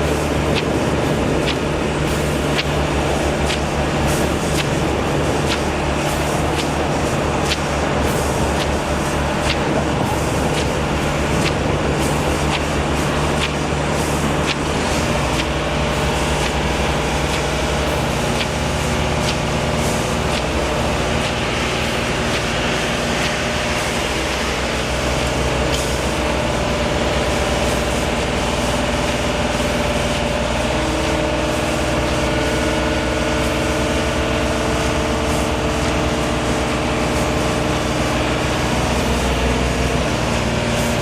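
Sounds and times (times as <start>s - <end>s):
large engine running: 0.0s - 41.0s.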